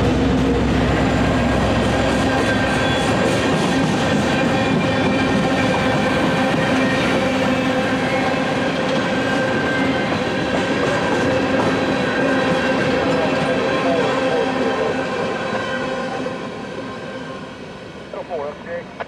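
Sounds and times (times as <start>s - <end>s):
freight train rumbling on rails: 0.0s - 19.0s.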